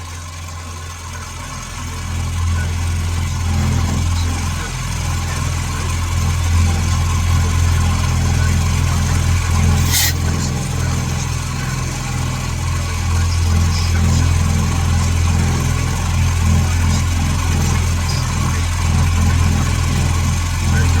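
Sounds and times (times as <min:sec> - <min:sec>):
short hiss: 0:09.8 - 0:10.4.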